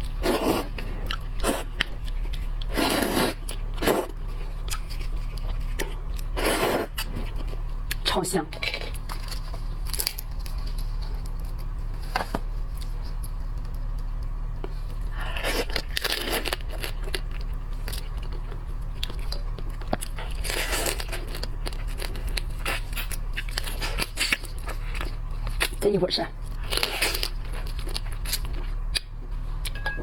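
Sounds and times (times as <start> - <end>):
steady low hum: 0.0 - 30.0
shells tearing and rustling: 8.6 - 14.0.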